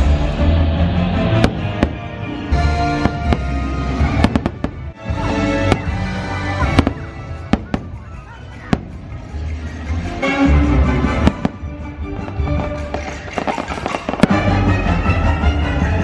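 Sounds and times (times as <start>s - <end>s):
music soundtrack: 0.0s - 16.0s
fireworks bangs: 1.2s - 9.4s, 11.1s - 15.0s.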